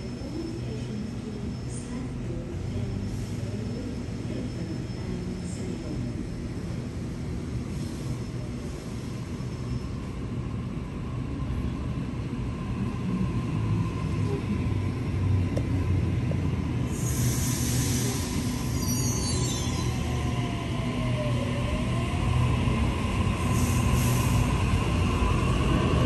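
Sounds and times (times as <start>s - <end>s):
train rumbling along tracks: 0.0s - 26.0s.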